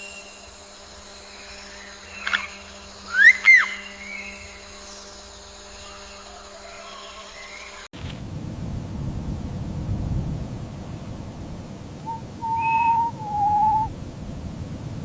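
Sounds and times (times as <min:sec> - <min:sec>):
faint steady hum: 0:00.0 - 0:15.0
whistle-like animal calls: 0:03.1 - 0:04.0, 0:12.0 - 0:13.9.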